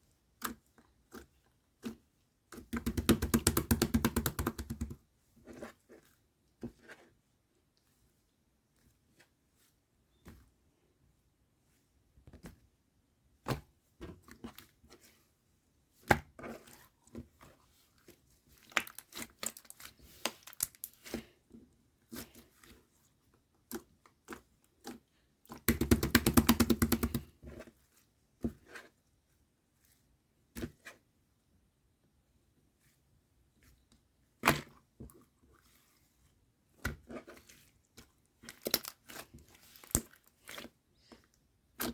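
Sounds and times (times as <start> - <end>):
slime with beads clicking: 2.8 - 5.0, 18.7 - 21.0, 25.7 - 27.3.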